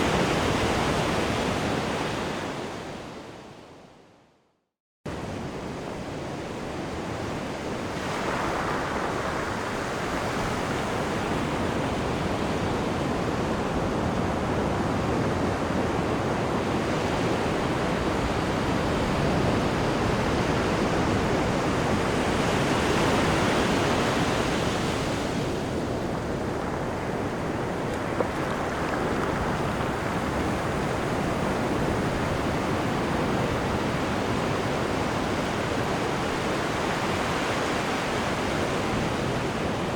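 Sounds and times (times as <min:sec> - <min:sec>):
wind on microphone: 0:05.1 - 0:39.9
rushing churning water: 0:20.6 - 0:39.9.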